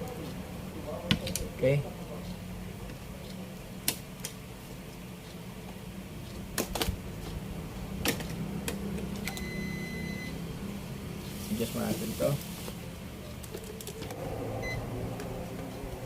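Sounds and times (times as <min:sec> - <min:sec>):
low hum: 0:13.9 - 0:16.0
high-pitched electronic beep: 0:14.6 - 0:14.9.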